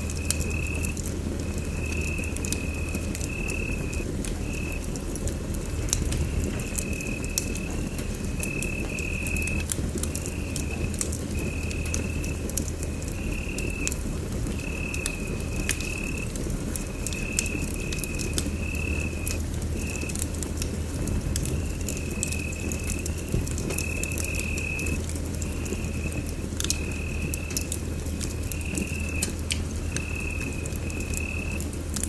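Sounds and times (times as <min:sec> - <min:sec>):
wood fire crackling and popping: 0:00.0 - 0:32.0
low rumble: 0:03.8 - 0:08.5.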